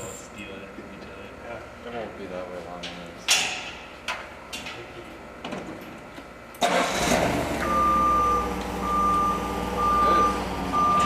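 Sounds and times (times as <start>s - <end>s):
forklift engine running: 6.6s - 11.0s
reversing alarm beeps: 7.6s - 11.0s.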